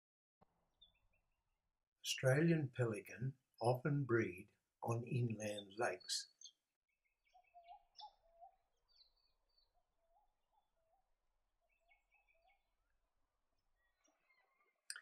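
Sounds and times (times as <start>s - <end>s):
faint bird chirps: 5.9s - 13.0s, 13.7s - 15.0s.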